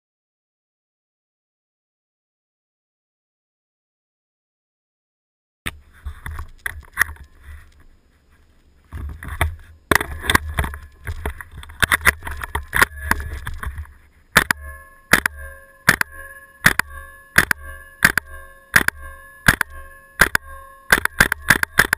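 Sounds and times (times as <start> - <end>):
airsoft rifle shots cracking: 14.3 - 21.9
blowback bolt cycling: 14.4 - 21.9.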